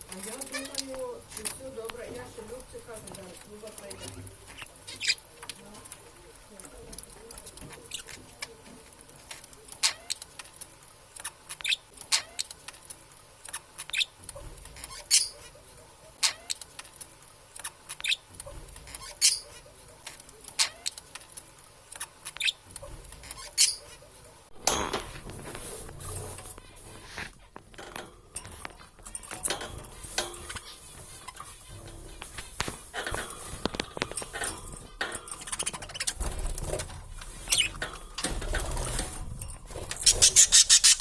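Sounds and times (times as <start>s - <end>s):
budgerigars chirping: 40.0s - 41.0s.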